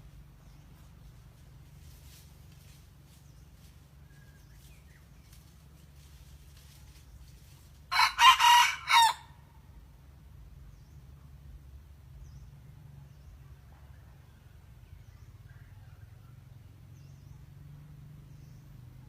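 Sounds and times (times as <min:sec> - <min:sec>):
young cockerel crowing: 0:07.9 - 0:09.4.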